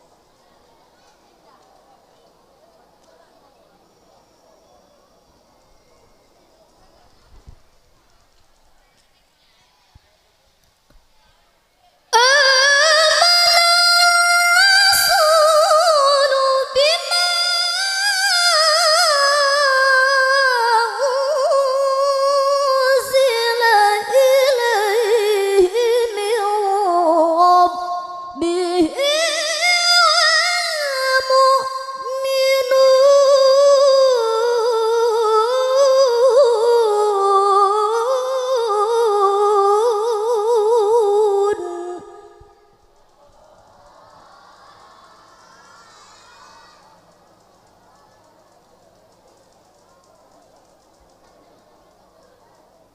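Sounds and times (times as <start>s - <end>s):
woman reciting melodically: 12.1s - 42.9s.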